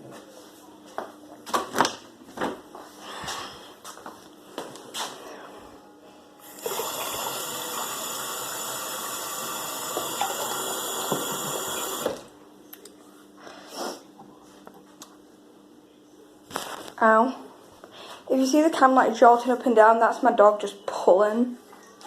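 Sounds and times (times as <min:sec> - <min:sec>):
water tap running: 0:06.4 - 0:12.3.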